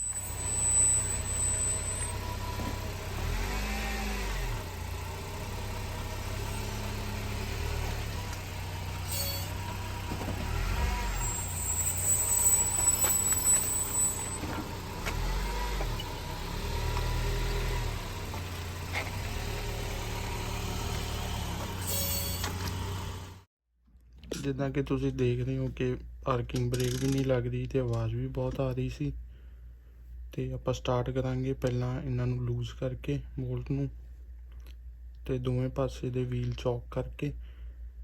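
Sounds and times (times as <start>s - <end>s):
brakes making rising tone: 0.0s - 23.5s
car engine hum: 0.0s - 23.5s.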